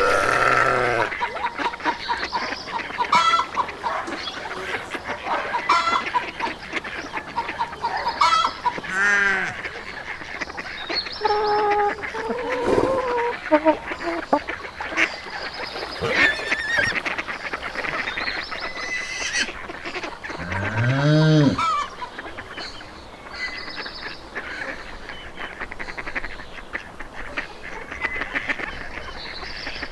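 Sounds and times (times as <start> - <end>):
geese honking: 0.0 - 22.4.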